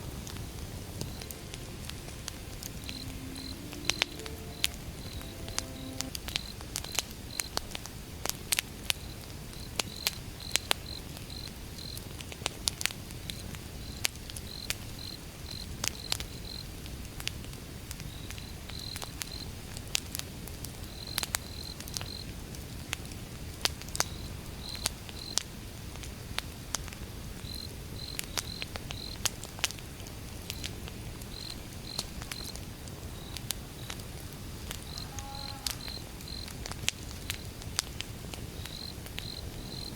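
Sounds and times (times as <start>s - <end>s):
crickets chirping: 0.1s - 6.6s, 34.8s - 36.6s, 38.6s - 39.9s
campfire crackling and popping: 19.8s - 35.0s, 36.2s - 39.9s.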